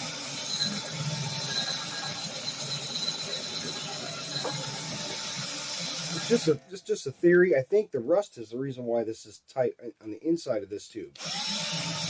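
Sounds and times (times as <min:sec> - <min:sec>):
drill running steadily: 0:00.0 - 0:06.6, 0:11.2 - 0:12.0
hone chattering in metal tube: 0:00.3 - 0:05.4.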